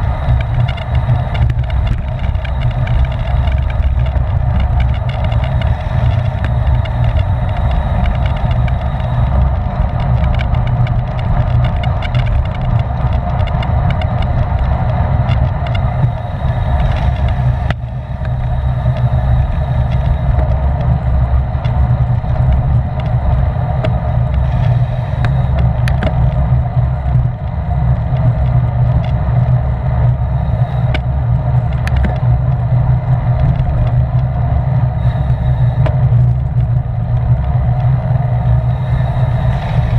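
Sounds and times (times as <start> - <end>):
bicycle tyres humming: 0.0 - 39.9
wind rumble on microphone: 0.0 - 39.9.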